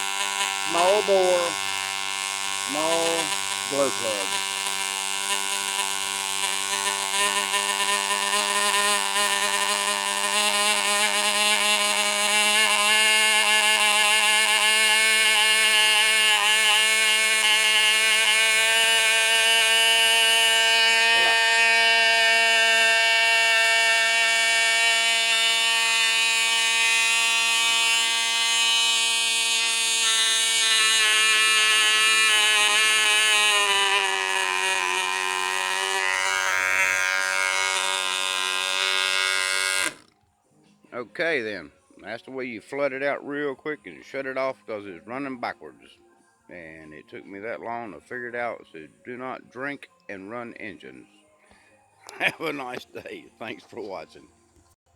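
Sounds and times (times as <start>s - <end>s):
model engine high-pitched buzz: 0.0s - 40.2s.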